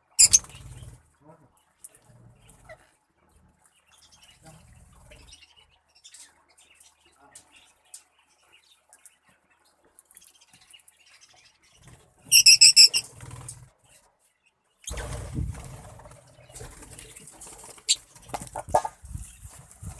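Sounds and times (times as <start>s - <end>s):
lovebirds chirping: 0.0s - 19.9s
noisy rustling: 14.9s - 19.9s.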